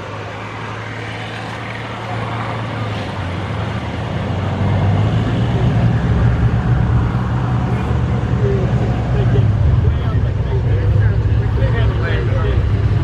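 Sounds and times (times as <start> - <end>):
vehicle engine running: 3.2 - 13.0.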